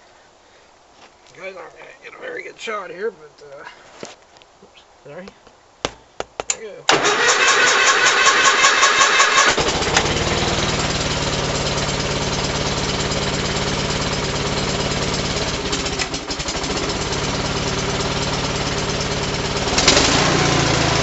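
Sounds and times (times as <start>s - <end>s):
tractor engine running: 6.9s - 21.0s.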